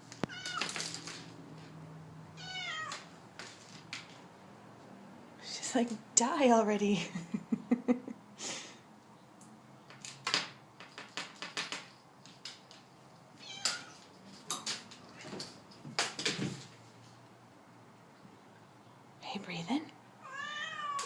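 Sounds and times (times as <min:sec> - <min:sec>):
clicks and rustles of toy: 0:00.0 - 0:01.8, 0:02.9 - 0:04.3, 0:09.8 - 0:16.8
cat meowing: 0:00.2 - 0:00.8, 0:02.4 - 0:03.1, 0:13.4 - 0:14.0, 0:20.2 - 0:21.0.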